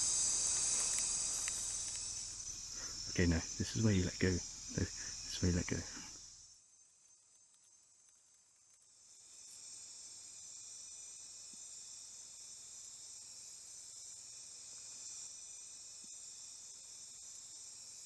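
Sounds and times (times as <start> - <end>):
crickets and insects trilling: 0.0 - 6.6, 9.0 - 18.0.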